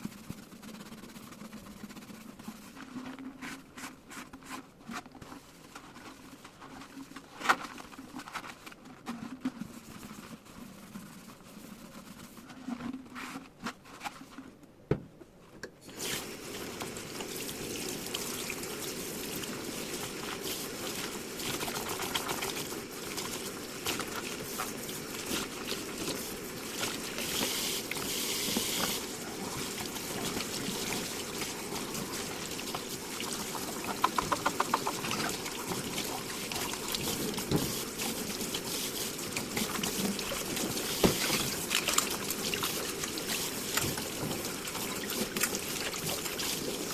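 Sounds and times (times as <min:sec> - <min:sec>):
tap water running into sink: 0:15.9 - 0:46.9
quick ticks: 0:33.9 - 0:35.0.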